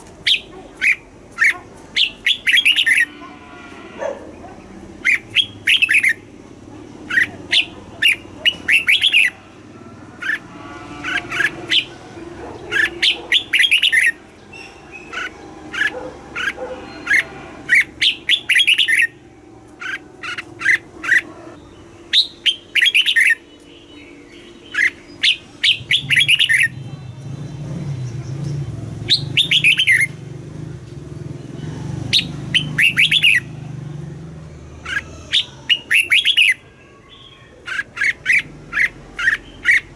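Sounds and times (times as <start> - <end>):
bulbul singing warbled phrases: 0.2 - 3.4, 4.3 - 39.9.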